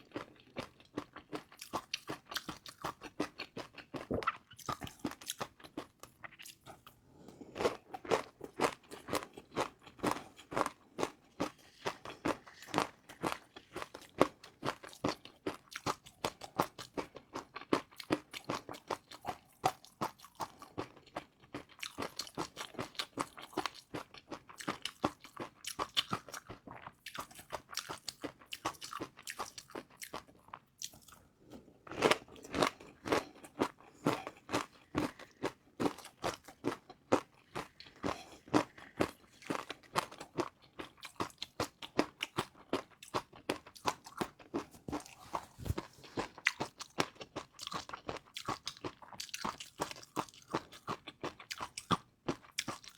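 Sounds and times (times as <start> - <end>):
crunchy chewing: 31.9 - 52.9.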